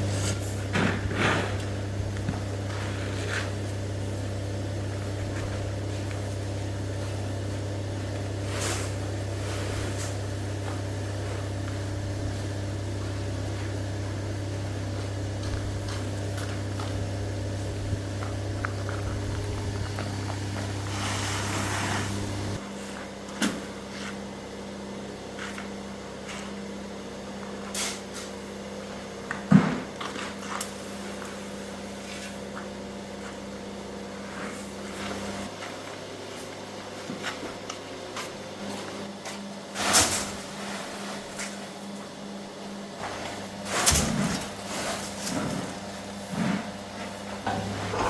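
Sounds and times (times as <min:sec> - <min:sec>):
machinery humming: 0:00.0 - 0:22.9, 0:43.4 - 0:48.0
low hum: 0:00.8 - 0:22.6
clanks and knocks: 0:47.4 - 0:48.0.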